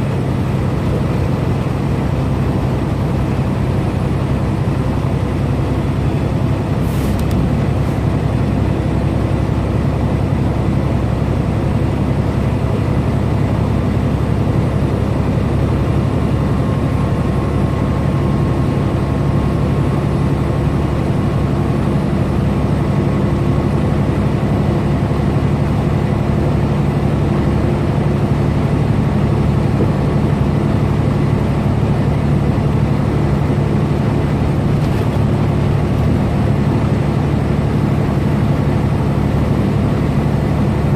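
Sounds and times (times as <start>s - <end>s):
truck diesel engine drone: 0.0s - 40.9s
brief click: 7.1s - 7.4s.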